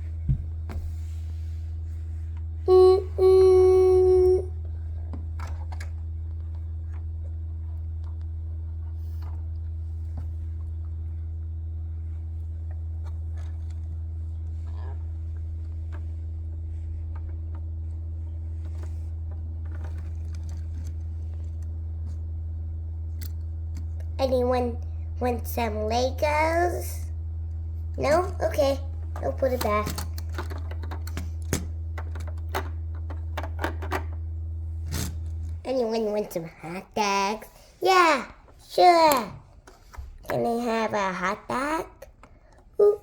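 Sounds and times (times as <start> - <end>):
constant low hum: 0.0 - 43.0
plastic pieces clicking: 29.6 - 34.1.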